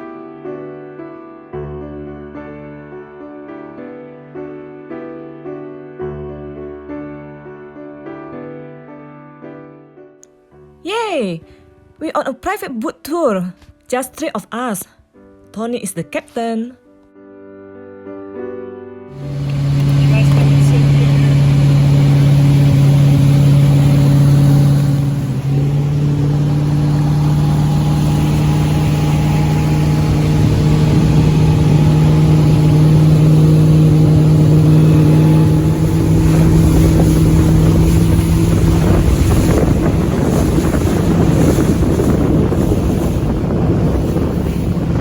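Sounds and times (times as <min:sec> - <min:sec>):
motorboat engine droning: 0:19.1 - 0:45.0
wind on microphone: 0:19.2 - 0:45.0.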